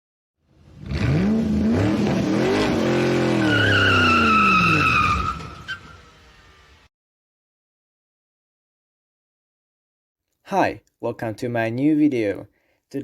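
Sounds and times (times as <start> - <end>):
car engine revving: 0.5 - 6.9
tyre squeal: 2.5 - 6.1.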